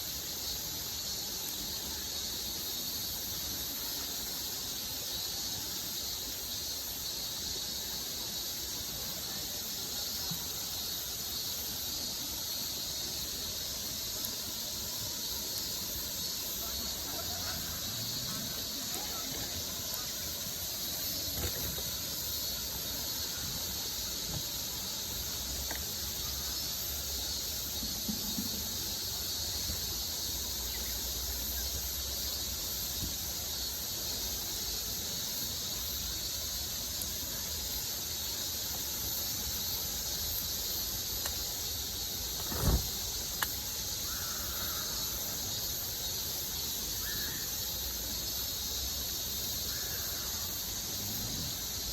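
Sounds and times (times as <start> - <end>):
high-pitched hiss: 0.0 - 51.9
faint clicks: 25.6 - 25.9.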